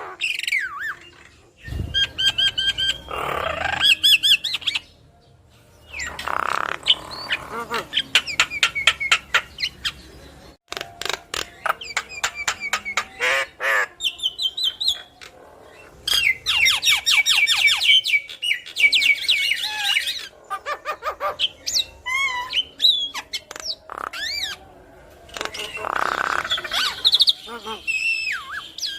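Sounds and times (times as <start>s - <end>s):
myna clicks and squawks: 18.3s - 24.6s, 25.2s - 28.3s.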